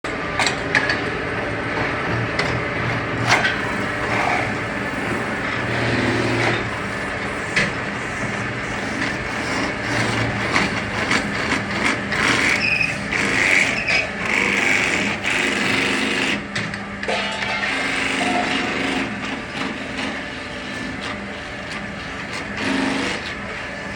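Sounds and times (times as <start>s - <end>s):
metalworking machinery running: 0.0s - 23.9s
sharp metallic knocks: 17.0s - 18.9s.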